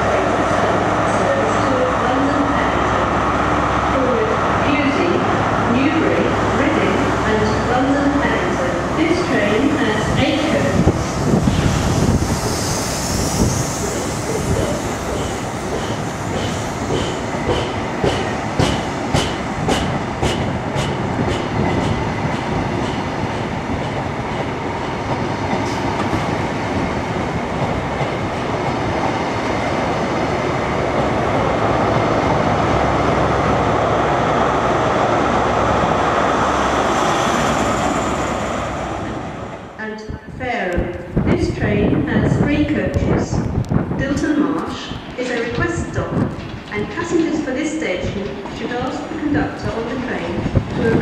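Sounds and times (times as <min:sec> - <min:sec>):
train wheels clicking: 0:11.5 - 0:26.4, 0:44.5 - 0:49.1.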